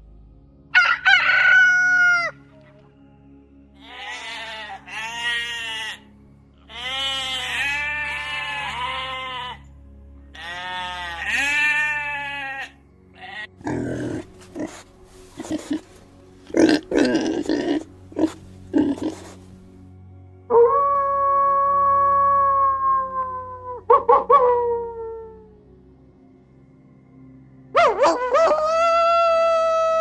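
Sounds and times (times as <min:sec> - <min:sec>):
faint background music: 0:00.0 - 0:30.0
long quavering bleats: 0:03.8 - 0:09.7, 0:10.3 - 0:19.4.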